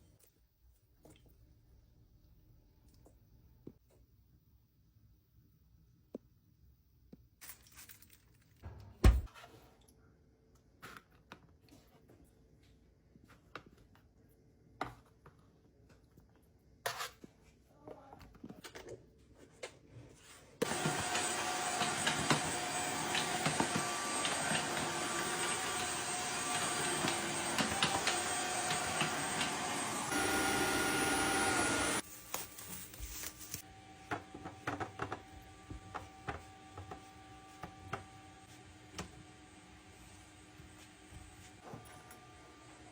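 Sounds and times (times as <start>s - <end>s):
kitchen appliance motor running: 20.6s - 32.0s.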